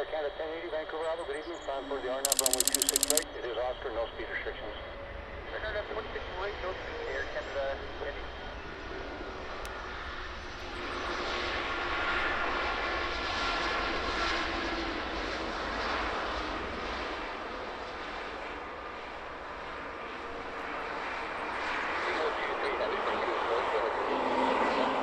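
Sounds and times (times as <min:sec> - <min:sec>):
airliner engines passing: 0:20.9 - 0:25.0.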